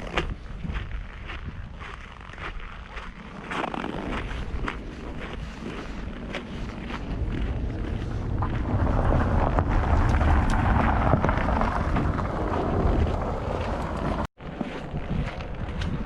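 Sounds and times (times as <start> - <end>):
footsteps crunching on snow: 0.0 - 16.0
vehicle passing: 6.6 - 14.3.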